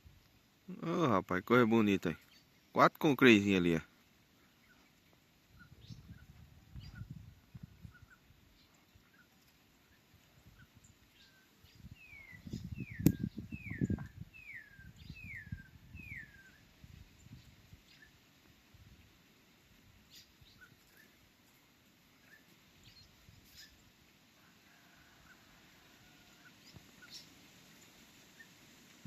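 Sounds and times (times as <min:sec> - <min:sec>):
faint bird chirps: 0:04.2 - 0:18.2, 0:20.0 - 0:28.6
bird whistling downward notes: 0:12.0 - 0:16.6
sharp click: 0:13.0 - 0:13.2.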